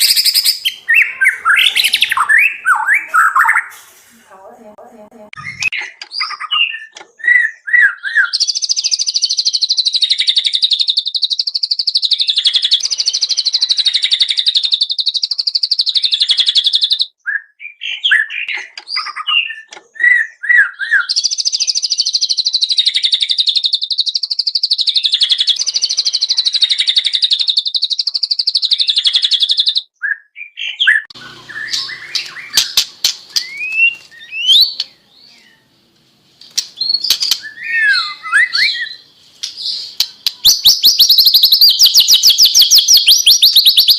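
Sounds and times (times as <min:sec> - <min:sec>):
bird whistled phrases: 0:00.0 - 0:03.8, 0:05.4 - 0:35.7, 0:36.8 - 0:43.9
bird sharp clicks: 0:31.2 - 0:35.0, 0:36.4 - 0:43.9.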